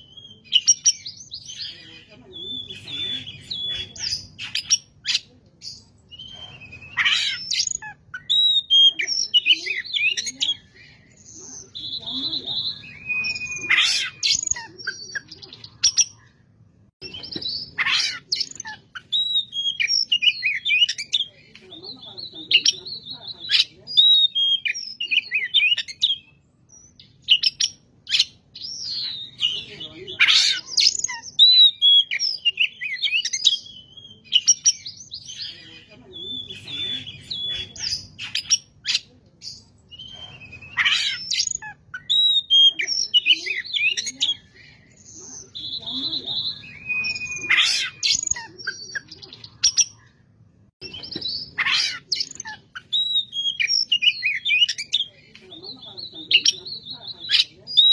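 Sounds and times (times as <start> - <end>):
songbird singing: 0.0 - 57.9
bird whistling and chirping: 6.1 - 10.6, 11.6 - 16.2, 17.0 - 21.2, 39.9 - 44.5, 45.4 - 49.9, 50.8 - 55.1.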